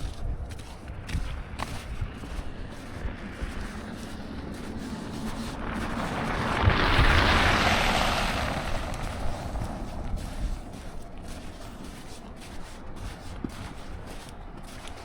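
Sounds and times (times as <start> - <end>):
street noise: 0.0 - 15.0
tyres hissing on slush: 3.8 - 13.8.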